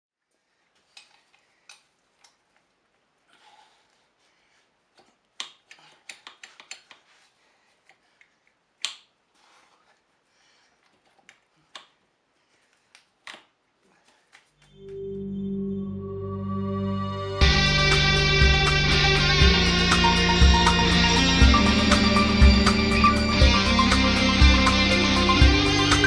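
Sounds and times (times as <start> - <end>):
music: 14.8 - 26.0.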